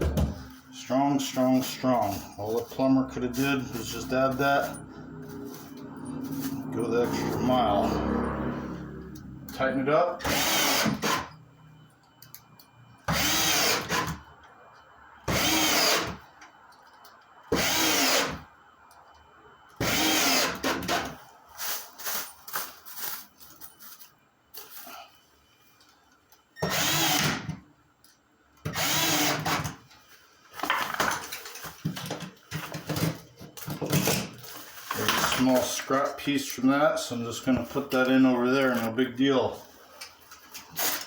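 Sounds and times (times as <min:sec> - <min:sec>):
power drill driving screws: 0:10.2 - 0:11.3, 0:13.1 - 0:14.2, 0:15.3 - 0:16.2, 0:17.5 - 0:18.4, 0:19.8 - 0:21.1, 0:26.6 - 0:27.5, 0:28.7 - 0:29.8.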